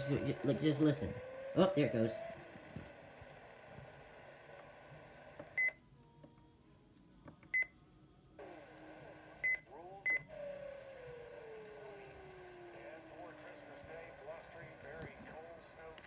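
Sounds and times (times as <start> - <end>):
radio static hiss: 11.8 - 16.0.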